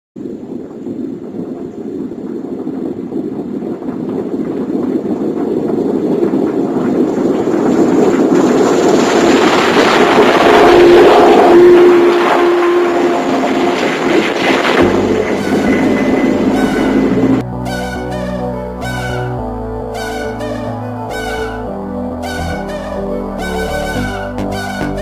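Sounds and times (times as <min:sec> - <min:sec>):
steady hum: 0:00.2 - 0:25.0
harvester diesel engine droning: 0:09.9 - 0:25.0.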